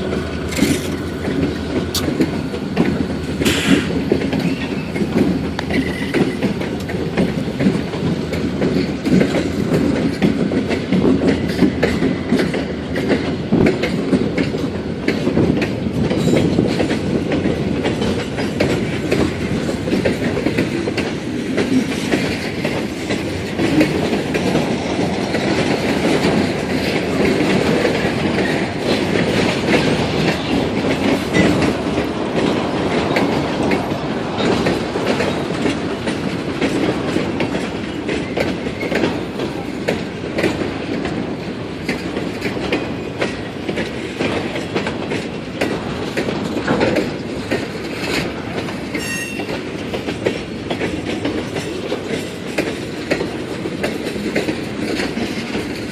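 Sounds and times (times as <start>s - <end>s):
train wheels clacking over rails: 0.0s - 55.9s.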